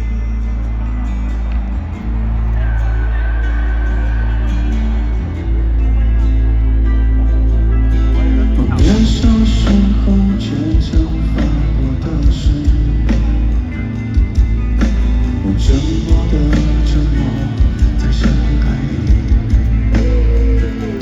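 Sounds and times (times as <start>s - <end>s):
heavy bass: 0.0s - 21.0s
live pop-rock band music: 0.0s - 21.0s
drum beat: 8.8s - 20.6s.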